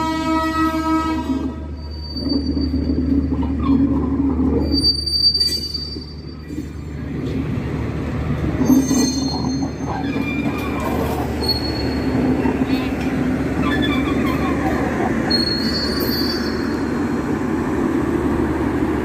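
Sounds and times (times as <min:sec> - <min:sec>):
train coaches rumbling on track: 0:00.0 - 0:19.0
wheels squealing: 0:01.8 - 0:06.7, 0:08.6 - 0:17.0.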